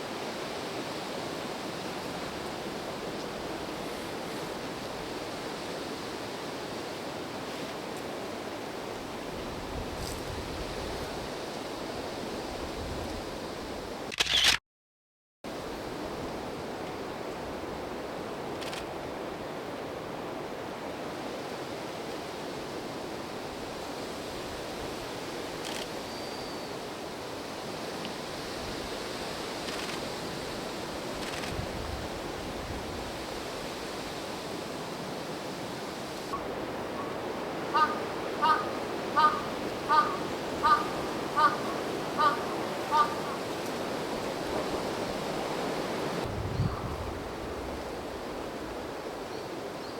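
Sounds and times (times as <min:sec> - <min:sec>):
wind noise on microphone: 0:09.2 - 0:14.0, 0:28.2 - 0:34.6, 0:39.2 - 0:49.2.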